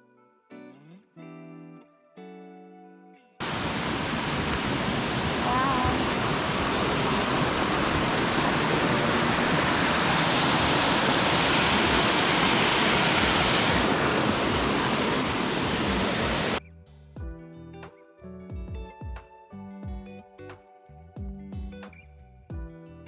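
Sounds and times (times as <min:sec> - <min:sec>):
waterfall rushing: 0:03.4 - 0:16.6.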